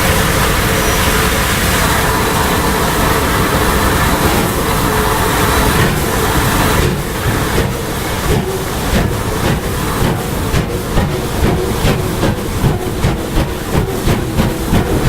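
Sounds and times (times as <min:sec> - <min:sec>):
steam train rumbling: 0:00.0 - 0:15.0.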